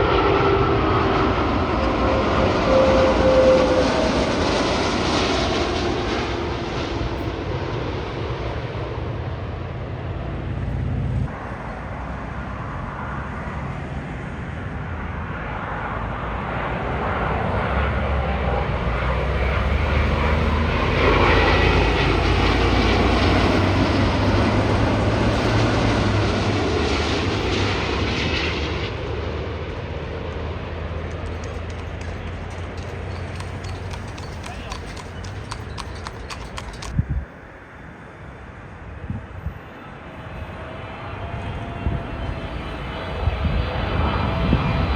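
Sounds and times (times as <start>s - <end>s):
jet airliner passing overhead: 0.0s - 44.9s.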